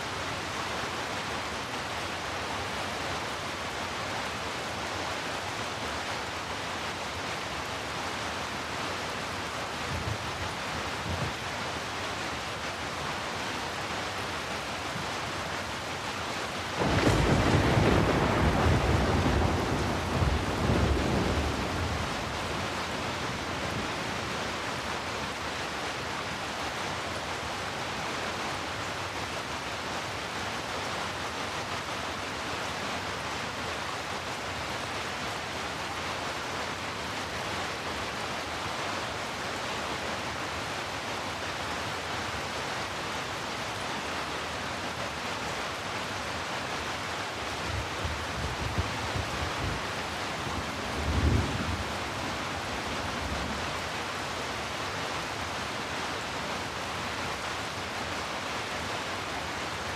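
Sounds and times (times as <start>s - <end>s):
steady falling rain: 0.0s - 59.9s
thunder rumbling: 16.8s - 24.0s, 48.4s - 53.6s.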